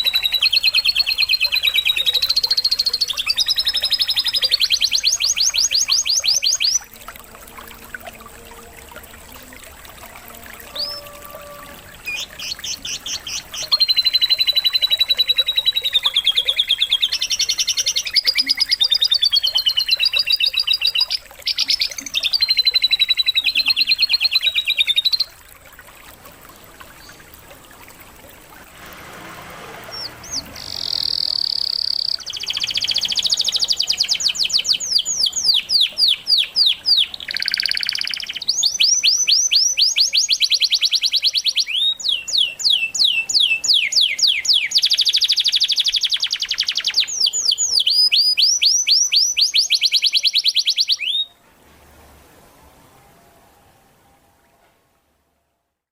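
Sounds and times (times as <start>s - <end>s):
canary singing trills: 0.0s - 7.0s, 10.6s - 25.4s, 29.8s - 51.4s.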